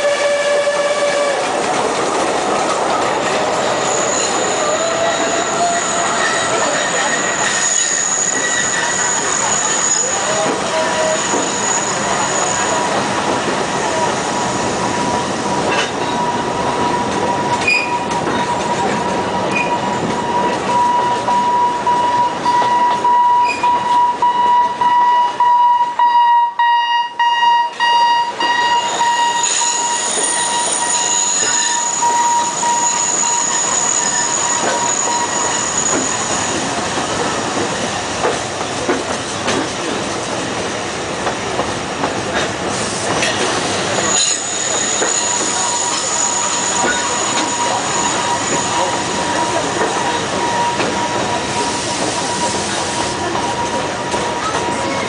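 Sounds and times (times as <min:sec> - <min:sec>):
train carriages running: 0:00.0 - 0:55.0
higher wheel squeal: 0:03.3 - 0:13.0, 0:13.8 - 0:24.2, 0:28.3 - 0:37.3, 0:42.8 - 0:55.0
train wheels squealing: 0:03.5 - 0:13.0, 0:13.8 - 0:24.0, 0:28.4 - 0:36.9, 0:42.8 - 0:55.0.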